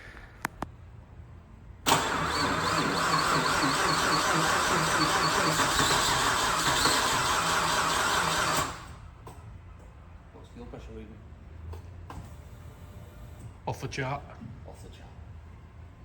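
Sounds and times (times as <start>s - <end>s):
car engine starting and running: 1.9s - 9.0s.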